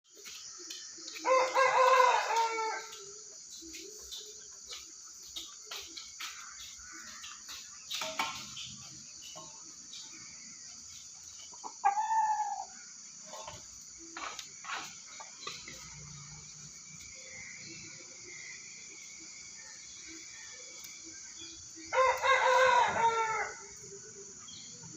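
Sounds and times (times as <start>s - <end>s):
steady high-pitched hiss: 0.1s - 24.9s
rooster crowing: 1.2s - 3.0s, 21.9s - 23.8s.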